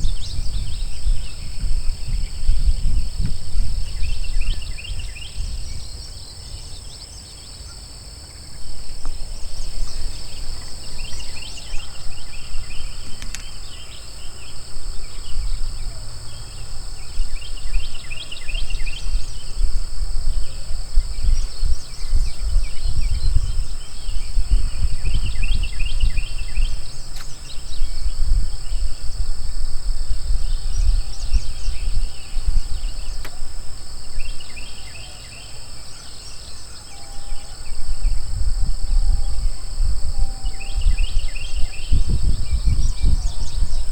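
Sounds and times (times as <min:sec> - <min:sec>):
high insect drone: 0:00.0 - 0:43.9
wind rumble on microphone: 0:00.0 - 0:43.9.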